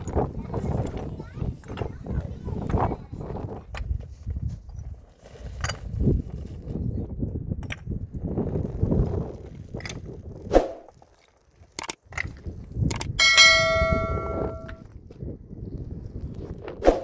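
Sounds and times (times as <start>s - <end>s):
handling noise: 13.2s - 14.8s
metal object struck ringing: 13.2s - 14.8s
sharp knocks: 13.2s - 14.8s.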